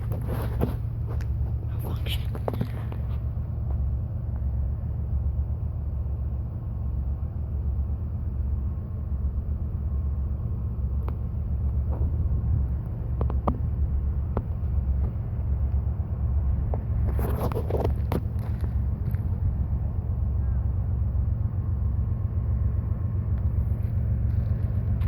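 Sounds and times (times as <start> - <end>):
sharp clicks and knocks: 13.1 - 13.7
freight train rumbling past: 18.0 - 25.0.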